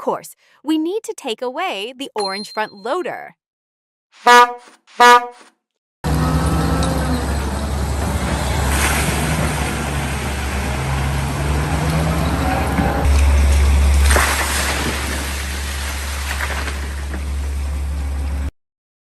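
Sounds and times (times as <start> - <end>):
road noise: 6.0 - 18.5
vehicle engine rumbling: 6.0 - 18.5.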